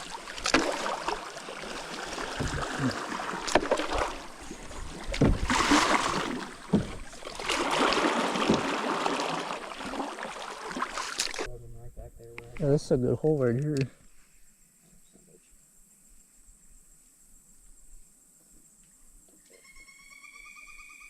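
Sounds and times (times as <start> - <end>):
paddle strokes: 0.0 - 11.5
rushing water: 0.0 - 11.5.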